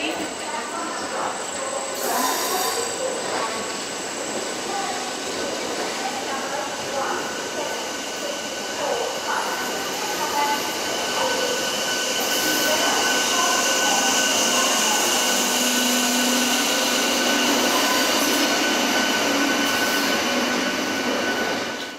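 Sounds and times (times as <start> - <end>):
train wheels rumbling on rail: 0.0 - 21.9.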